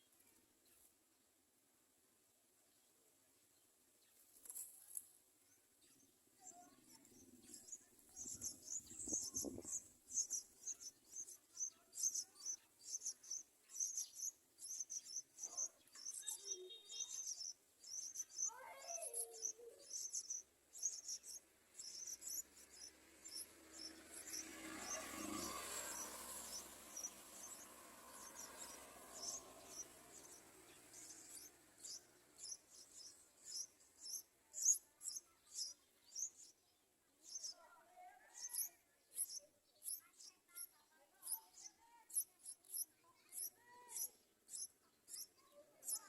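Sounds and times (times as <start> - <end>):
nestlings cheeping: 7.5 - 36.5, 38.4 - 46.0.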